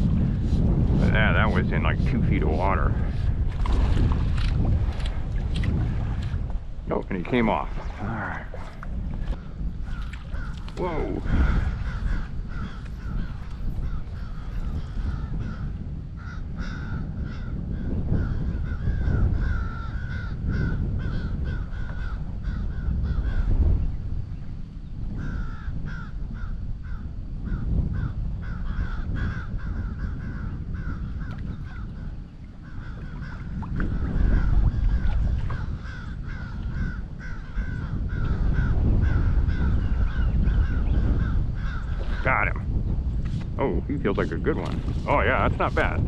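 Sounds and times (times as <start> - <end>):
wind rumble on microphone: 0.0 - 46.0.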